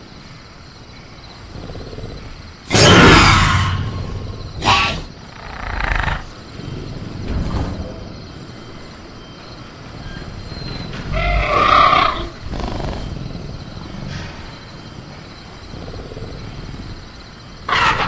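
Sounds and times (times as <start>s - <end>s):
jungle night ambience: 0.0s - 18.0s
harsh creature growling call: 2.7s - 6.3s, 17.7s - 18.0s.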